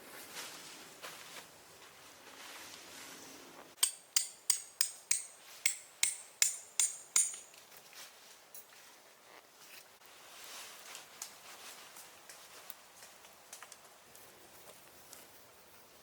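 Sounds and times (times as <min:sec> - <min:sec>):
hammer blows with metallic ring: 0:03.8 - 0:07.5.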